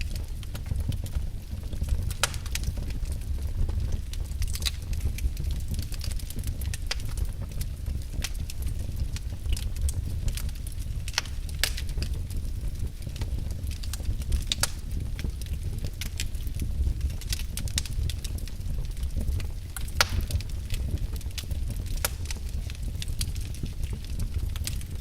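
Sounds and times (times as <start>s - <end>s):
log fire crackling: 0.0s - 25.0s.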